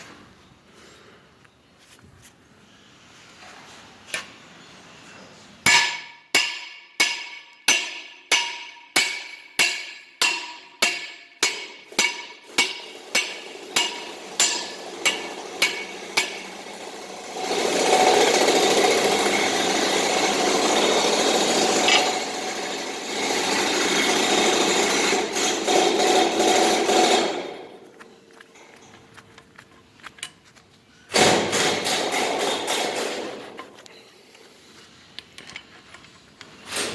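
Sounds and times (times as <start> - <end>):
power tool running: 13.5 - 27.3.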